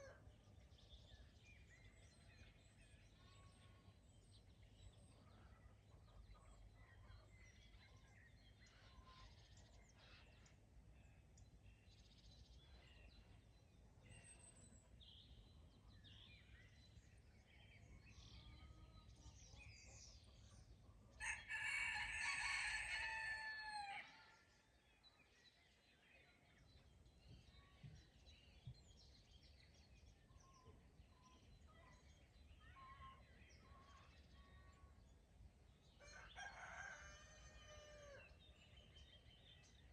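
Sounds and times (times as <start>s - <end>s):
faint songbird chirps: 0.0s - 21.4s, 24.3s - 37.1s
rooster crowing: 21.2s - 24.1s.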